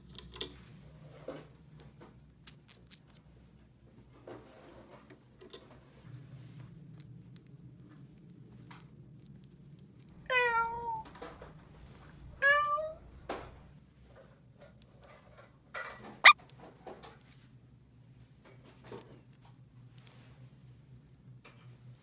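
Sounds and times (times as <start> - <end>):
cat meowing: 10.3 - 11.1, 12.4 - 13.0.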